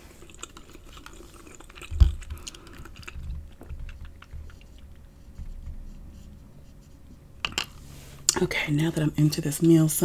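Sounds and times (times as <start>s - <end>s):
chewing food: 0.0s - 6.0s.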